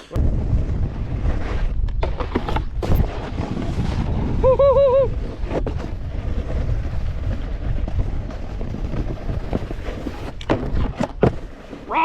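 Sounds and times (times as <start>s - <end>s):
snowboard scraping over snow: 0.0s - 12.0s
wind buffeting microphone: 0.2s - 11.0s.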